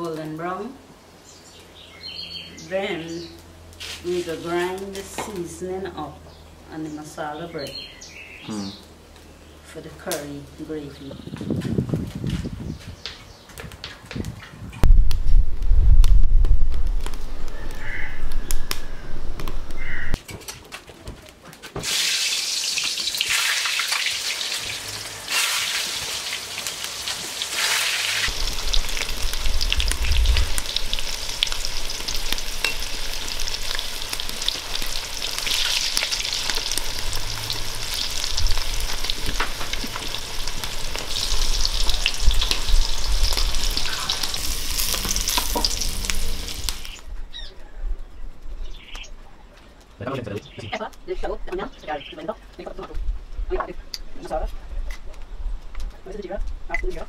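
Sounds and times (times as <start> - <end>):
vegetables sizzling in hot oil: 21.8 - 47.0.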